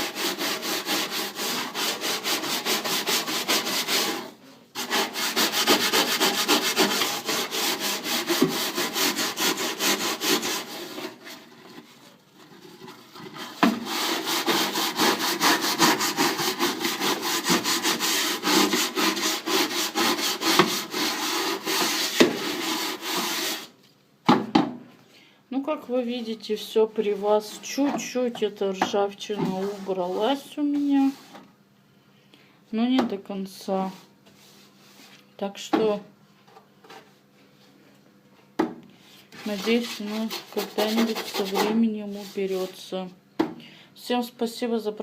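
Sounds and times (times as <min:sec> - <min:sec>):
rapid scrubbing of metal: 0:00.0 - 0:11.8, 0:12.4 - 0:23.6, 0:39.4 - 0:42.8.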